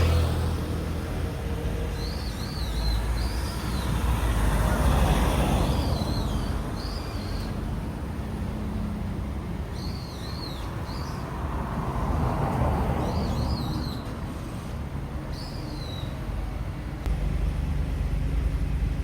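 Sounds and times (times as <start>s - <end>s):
vehicle passing: 0.0s - 1.8s
road traffic noise: 0.0s - 19.0s.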